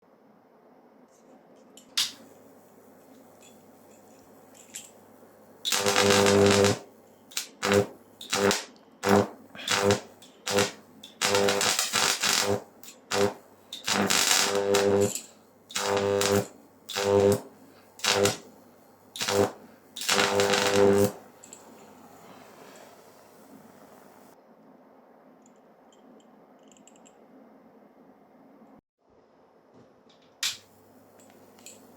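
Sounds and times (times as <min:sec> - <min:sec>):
high-voltage arc buzzing crackle: 0:05.6 - 0:21.6.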